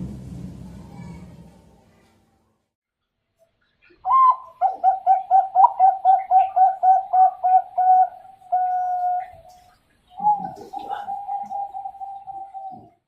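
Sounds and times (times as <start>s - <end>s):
dove cooing: 4.0s - 13.0s.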